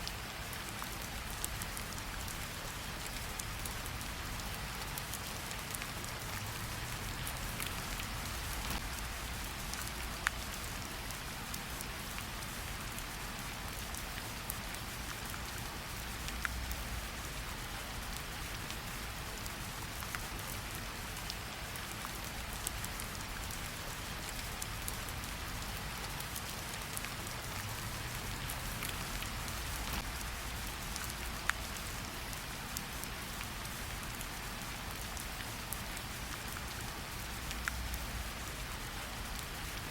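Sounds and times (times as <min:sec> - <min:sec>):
rain hiss: 0:00.0 - 0:39.9
sharp drip ticks: 0:34.9 - 0:38.2.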